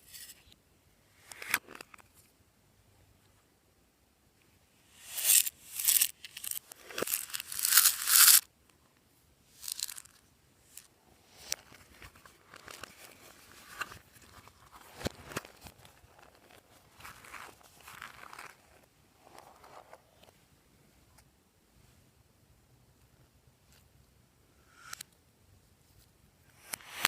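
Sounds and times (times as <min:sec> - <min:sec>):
crinkly material tearing: 0:15.5 - 0:18.8.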